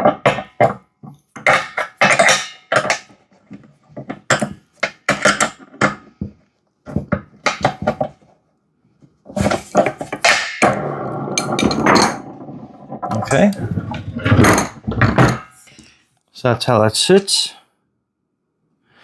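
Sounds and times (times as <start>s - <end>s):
metal clanks and knocks: 0.0s - 8.3s, 9.3s - 15.7s.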